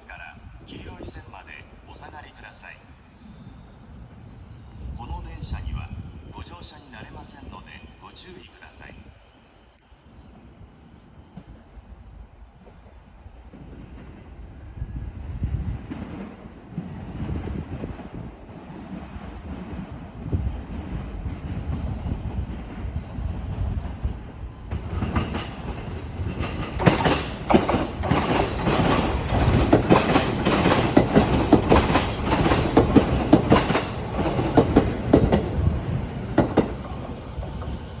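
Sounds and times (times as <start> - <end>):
train rumble: 10.3 - 38.0
rapid wheel clicks over rail joints: 24.7 - 37.7.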